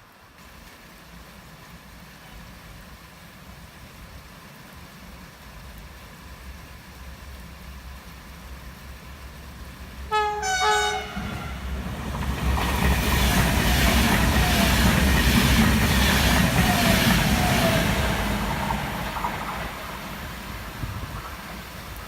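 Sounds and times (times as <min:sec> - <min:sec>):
train wheels rolling on rails: 0:06.4 - 0:22.0
train horn blasts: 0:10.1 - 0:11.8.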